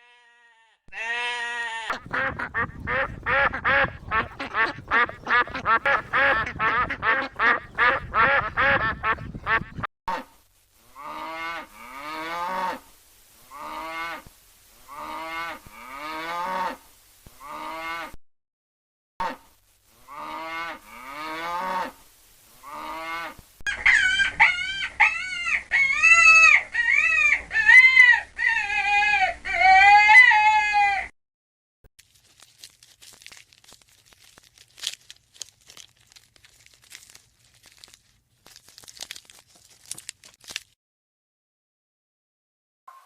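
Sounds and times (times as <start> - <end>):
farm animals calling: 0.0 - 9.9, 22.6 - 31.0
faint clicks and rustles: 32.0 - 40.8.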